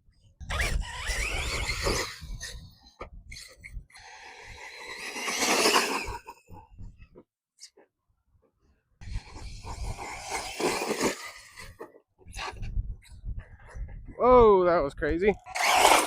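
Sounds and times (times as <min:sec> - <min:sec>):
electric motor whining: 0:00.4 - 0:06.9, 0:09.0 - 0:11.8, 0:15.4 - 0:16.0.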